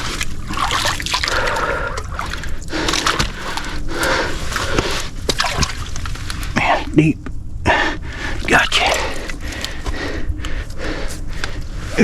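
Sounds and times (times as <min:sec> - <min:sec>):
wading water sloshing: 0:00.0 - 0:06.9.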